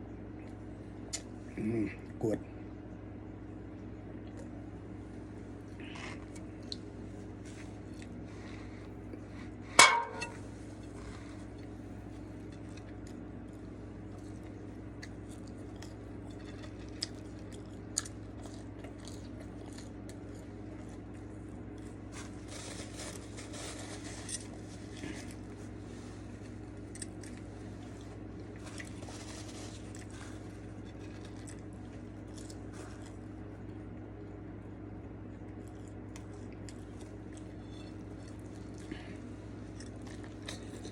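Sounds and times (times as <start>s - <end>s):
steady low hum: 0.0s - 40.9s
small clicks and crunchy handling: 10.8s - 33.8s, 35.6s - 40.9s.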